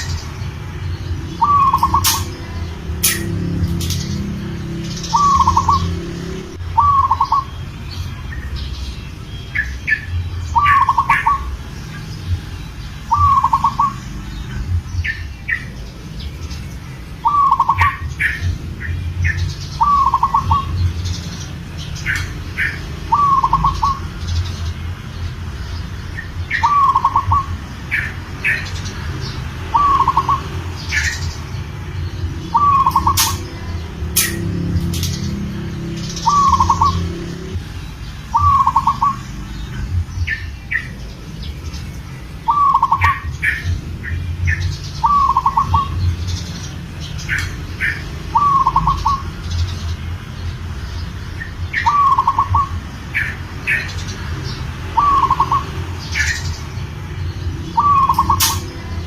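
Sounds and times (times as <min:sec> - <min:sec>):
small birds chirping: 0:00.0 - 0:59.0
dove cooing: 0:01.2 - 0:03.4, 0:04.4 - 0:07.6, 0:09.9 - 0:11.6, 0:13.1 - 0:14.0, 0:17.2 - 0:21.1, 0:22.0 - 0:24.1, 0:26.4 - 0:28.7, 0:29.6 - 0:31.5, 0:32.3 - 0:34.3, 0:36.2 - 0:37.6, 0:38.3 - 0:39.2, 0:42.5 - 0:43.8, 0:44.5 - 0:46.2, 0:47.4 - 0:49.4, 0:51.8 - 0:53.8, 0:54.9 - 0:56.4, 0:57.7 - 0:58.7.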